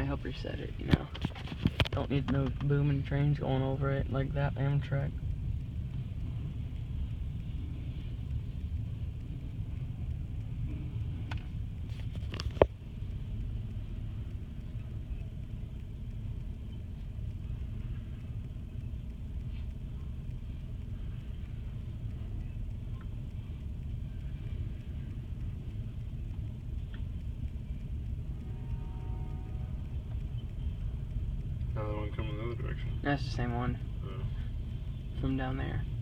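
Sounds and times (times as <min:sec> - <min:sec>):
sharp clicks and knock: 0:00.8 - 0:03.4, 0:08.3 - 0:31.8
train rumbling past: 0:12.8 - 0:36.0.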